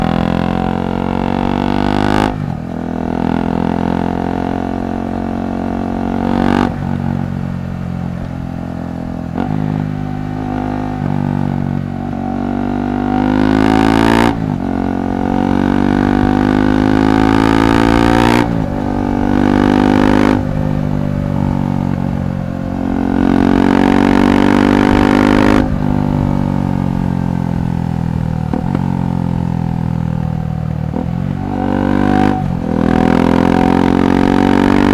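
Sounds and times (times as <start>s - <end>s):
motorcycle exhaust accelerating: 0.0s - 34.9s.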